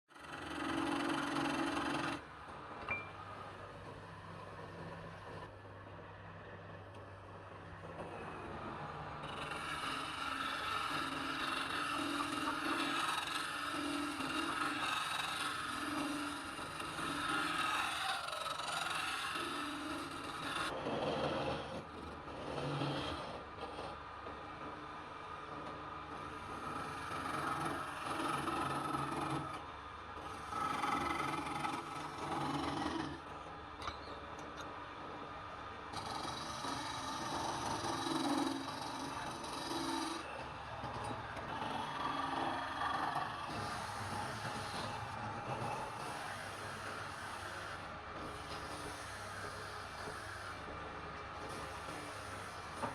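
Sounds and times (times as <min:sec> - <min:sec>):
wood lathe tool scraping wood: 0:00.2 - 0:02.2, 0:09.2 - 0:24.0, 0:26.2 - 0:29.6, 0:30.3 - 0:33.3, 0:36.0 - 0:50.8, 0:51.4 - 0:52.9.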